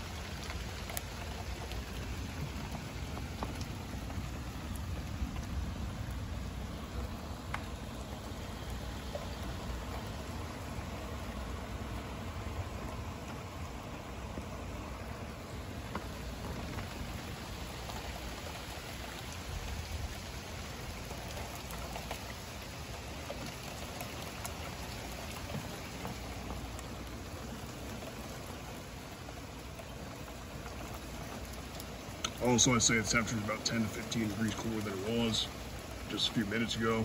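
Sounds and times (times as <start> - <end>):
heavy rain falling: 0.0 - 37.0
close drops ticking: 32.1 - 37.0.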